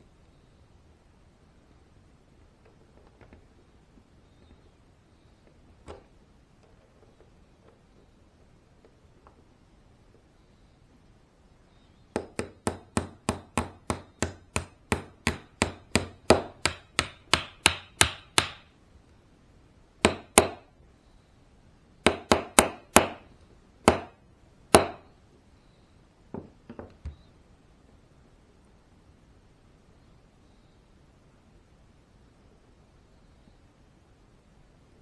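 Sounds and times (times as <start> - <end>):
hammer taps: 12.1 - 18.7, 20.0 - 20.6, 22.0 - 23.2, 23.8 - 25.1.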